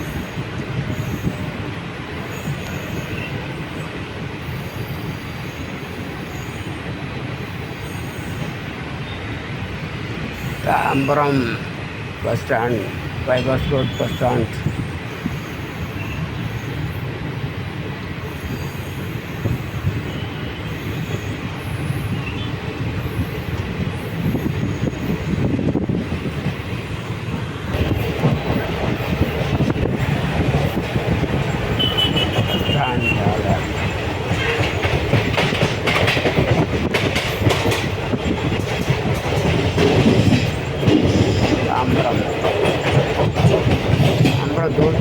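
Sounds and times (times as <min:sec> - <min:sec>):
train wheels rumbling on rails: 0:00.0 - 0:45.0
wheels clattering over rails: 0:24.2 - 0:45.0.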